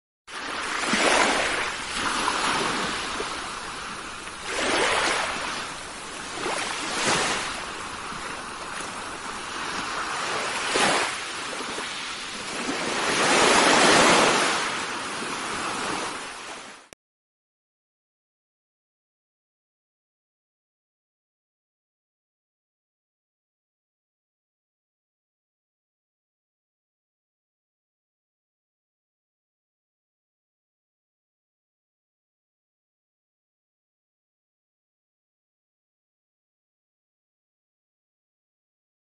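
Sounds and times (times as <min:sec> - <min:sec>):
ocean waves washing in: 0:00.3 - 0:16.9.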